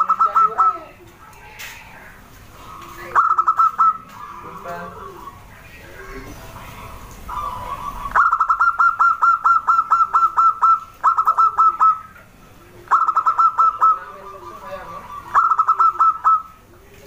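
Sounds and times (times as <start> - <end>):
dove calling: 0.0 - 17.0.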